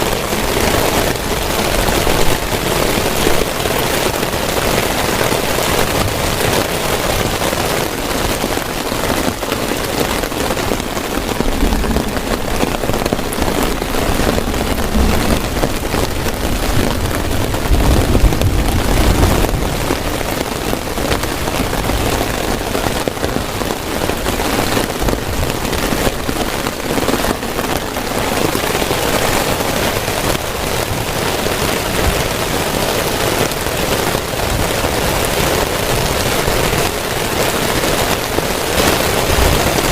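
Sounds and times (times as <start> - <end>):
heavy rain on a tent: 0.0 - 39.9
low rumble: 11.1 - 20.3.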